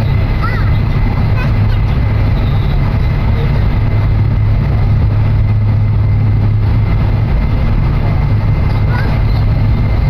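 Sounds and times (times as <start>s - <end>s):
train cabin hum and rushing: 0.0s - 10.0s.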